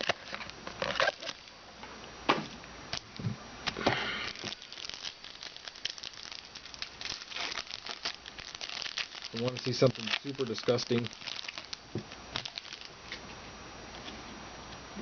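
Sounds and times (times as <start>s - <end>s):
plastic wrapper crinkling: 0.0s - 1.6s, 2.9s - 13.2s.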